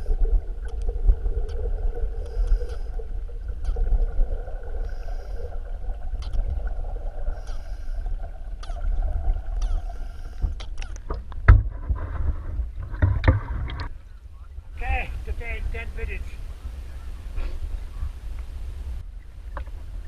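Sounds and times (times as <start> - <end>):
rumble of water and bubbles: 0.0 - 20.0
regulator breathing hiss: 4.8 - 5.6, 7.3 - 8.2, 9.8 - 10.6.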